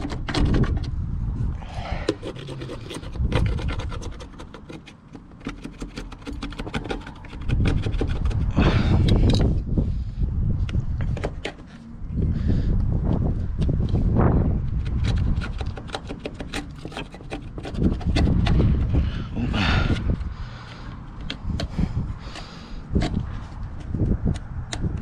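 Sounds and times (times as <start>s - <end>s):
scraping sealant off wall: 1.8s - 8.5s, 14.7s - 24.1s.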